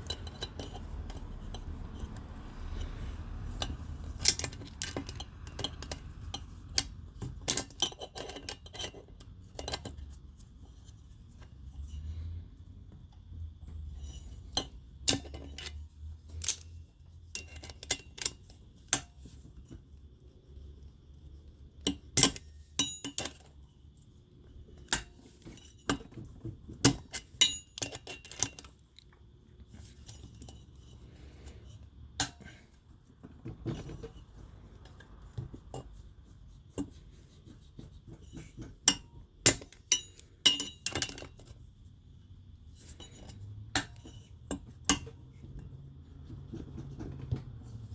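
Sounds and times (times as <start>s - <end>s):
hand tools clinking on metal parts: 0.0s - 10.0s, 21.9s - 23.5s, 26.8s - 28.8s, 38.9s - 41.5s
low steady hum: 0.0s - 47.9s.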